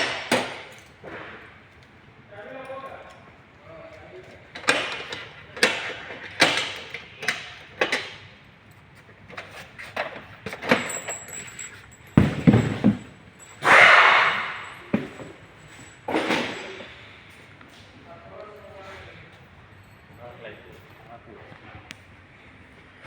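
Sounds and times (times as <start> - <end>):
metallic clanks of tools: 4.5 - 8.3, 9.3 - 17.1
heavy thuds: 12.1 - 13.2.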